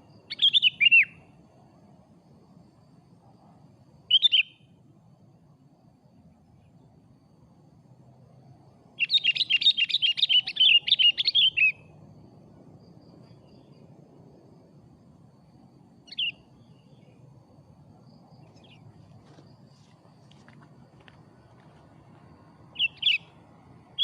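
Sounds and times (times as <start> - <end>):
bird chirping song: 0.0 - 1.4, 4.1 - 4.8, 9.0 - 12.0, 13.0 - 14.0, 16.0 - 17.4, 18.0 - 20.6, 22.6 - 24.0.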